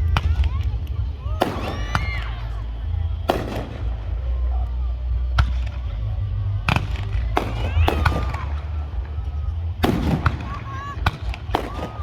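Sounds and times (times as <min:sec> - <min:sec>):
crowd voices: 0:00.0 - 0:12.0
deep rumble: 0:00.0 - 0:12.0
fireworks bangs: 0:00.0 - 0:12.0.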